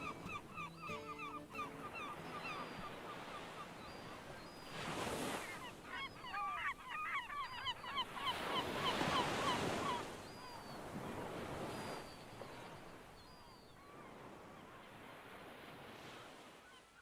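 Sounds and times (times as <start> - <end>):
flock of birds calling: 0.0 - 10.1.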